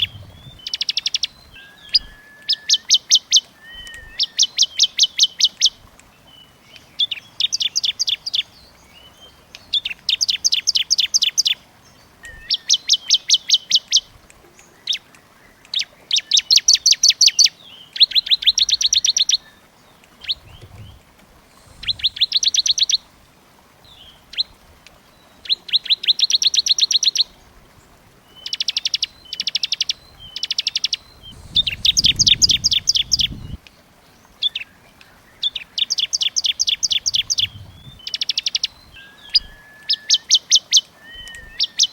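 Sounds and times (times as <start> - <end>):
songbird trilling: 0.0 - 5.8, 12.2 - 14.1, 20.2 - 23.0, 28.4 - 33.6, 35.4 - 41.9.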